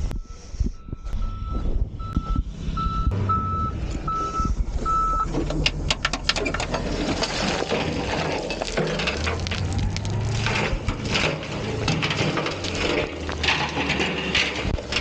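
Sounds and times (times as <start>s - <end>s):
truck engine humming: 0.9s - 15.0s
rock and dirt crunching: 3.3s - 15.0s.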